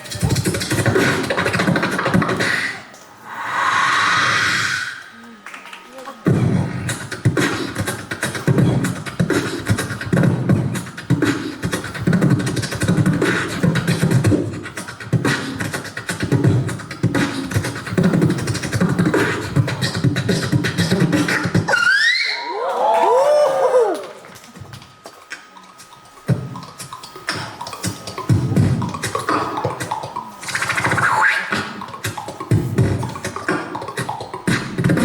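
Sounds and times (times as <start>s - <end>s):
beatboxing: 0.0s - 22.5s, 23.5s - 35.0s
swooping pitched vocal sounds: 0.0s - 22.5s, 25.3s - 35.0s.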